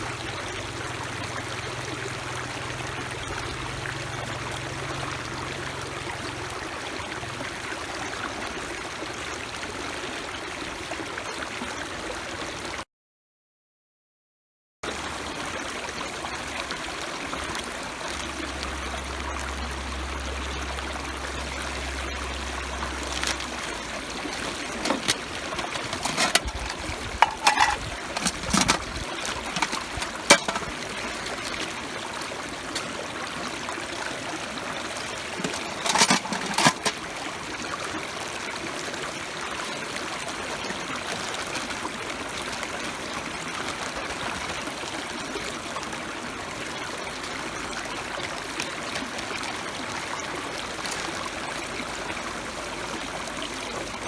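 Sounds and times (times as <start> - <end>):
rushing water noise: 16.2 - 54.0
clicks and knocks: 24.6 - 30.8, 35.4 - 37.0.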